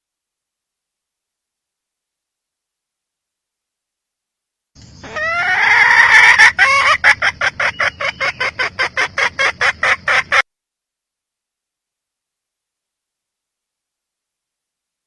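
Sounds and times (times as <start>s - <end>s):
hen calling: 4.8s - 10.4s
hen clucking rapidly: 5.0s - 10.4s.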